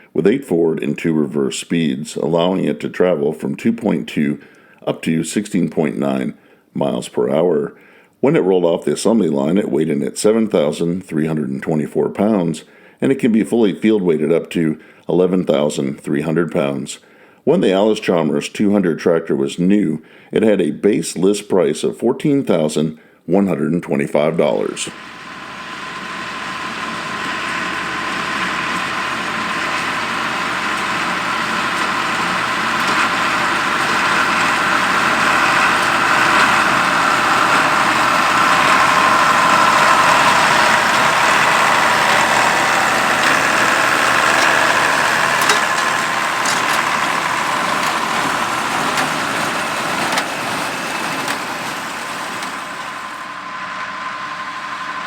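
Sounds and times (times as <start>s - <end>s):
tractor diesel engine running: 24.5s - 55.0s.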